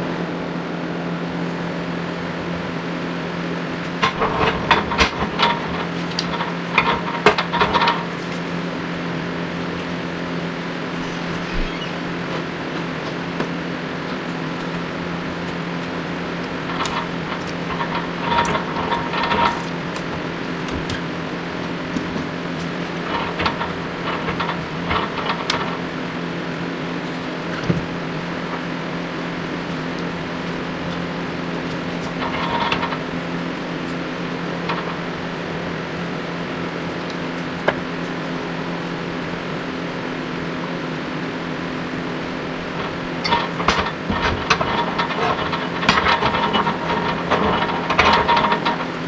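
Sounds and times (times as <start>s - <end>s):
steady mechanical hum: 0.0s - 49.0s
light clattering and ticking: 3.8s - 10.0s, 14.2s - 26.4s, 27.0s - 35.6s, 42.2s - 49.0s.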